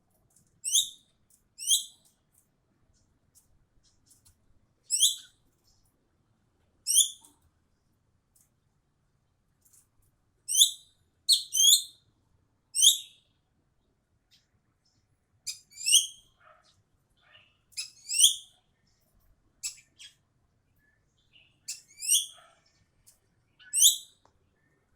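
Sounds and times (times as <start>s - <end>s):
bird calling sharp downward calls: 10.5s - 11.9s.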